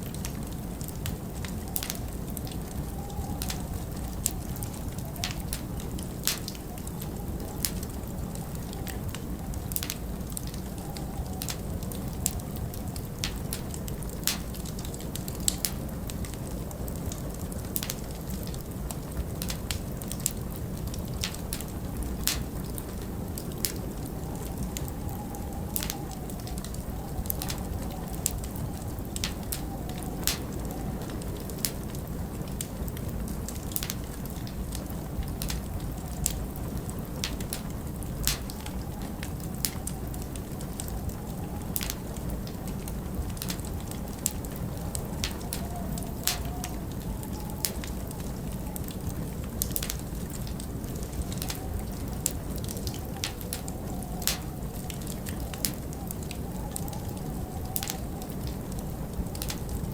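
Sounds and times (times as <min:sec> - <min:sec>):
howling blizzard wind: 0:00.0 - 0:59.9
log fire crackling and popping: 0:00.0 - 0:59.9.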